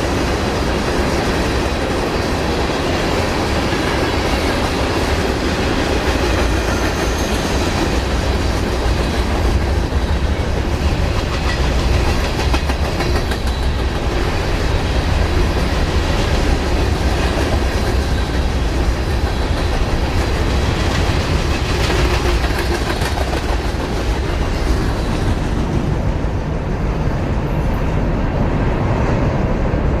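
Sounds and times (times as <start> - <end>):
train wheels clicking over rail joints: 0.0 - 25.9.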